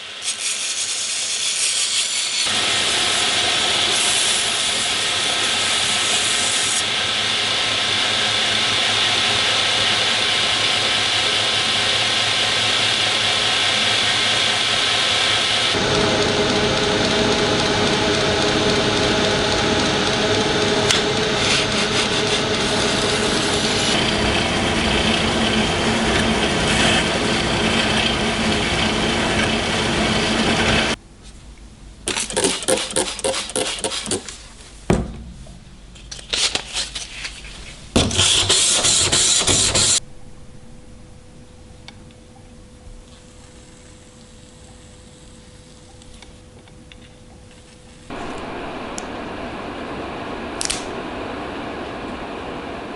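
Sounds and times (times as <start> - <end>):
power tool running: 2.4 - 31.0, 48.1 - 52.4.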